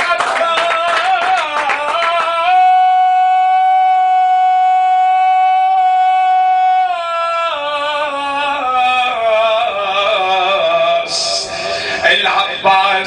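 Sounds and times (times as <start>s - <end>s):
man singing melismatic lament: 0.0s - 13.0s.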